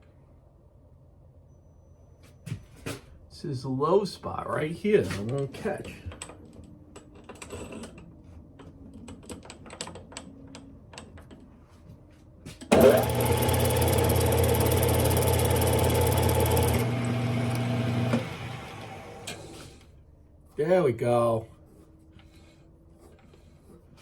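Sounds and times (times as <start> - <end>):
lathe motor running: 12.7 - 19.8.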